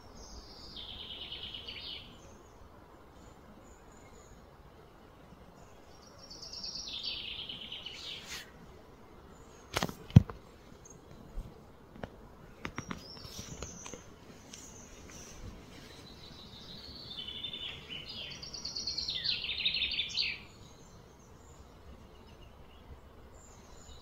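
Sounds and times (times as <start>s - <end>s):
bird singing a rapid trill: 0.2s - 2.5s, 16.1s - 24.0s.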